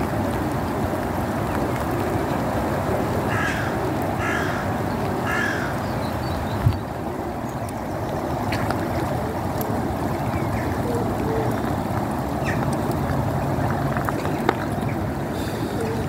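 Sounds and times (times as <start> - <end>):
rain: 0.0 - 16.0
wind: 0.0 - 16.0.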